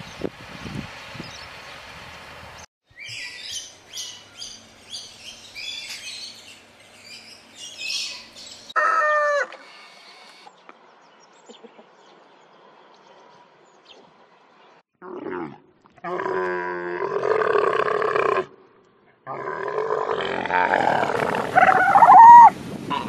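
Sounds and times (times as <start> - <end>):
rooster crowing: 8.8 - 9.7.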